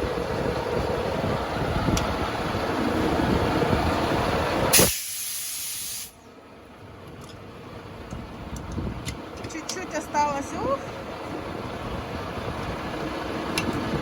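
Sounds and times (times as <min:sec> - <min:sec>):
diesel truck engine rumbling: 0:00.0 - 0:14.0
loud air hiss: 0:04.7 - 0:06.2.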